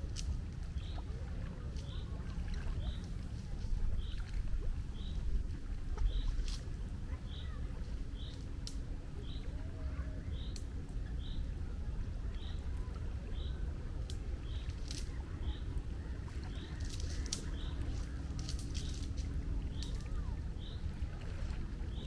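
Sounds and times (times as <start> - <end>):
wind and water rushing: 0.0 - 22.0
splash-like clicks: 8.2 - 8.9, 14.0 - 15.2, 16.4 - 20.2.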